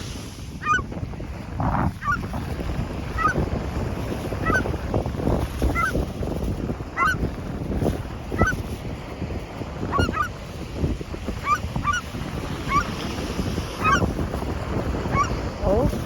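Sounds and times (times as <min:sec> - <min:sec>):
seagulls squawking: 0:00.6 - 0:00.8, 0:02.0 - 0:02.2, 0:03.2 - 0:03.4, 0:04.4 - 0:04.7, 0:05.7 - 0:06.0, 0:07.0 - 0:07.2, 0:08.4 - 0:08.6, 0:09.9 - 0:10.4, 0:11.4 - 0:12.1, 0:12.7 - 0:12.9, 0:13.8 - 0:14.1, 0:15.1 - 0:15.4.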